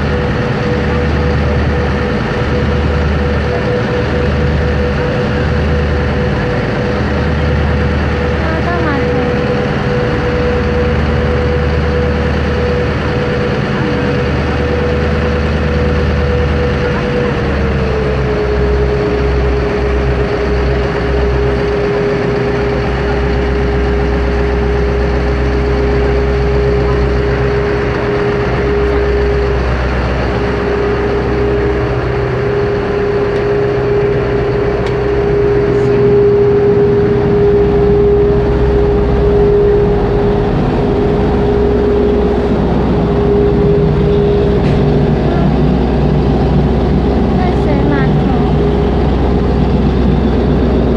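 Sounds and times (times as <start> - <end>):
ferry engine droning: 0.0 - 50.9.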